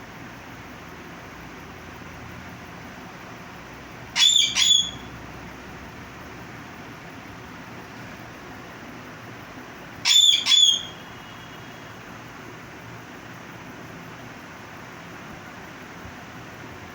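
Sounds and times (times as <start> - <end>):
steady background hiss: 0.0 - 16.9
parrot whistling calls: 4.2 - 5.1, 10.0 - 11.7.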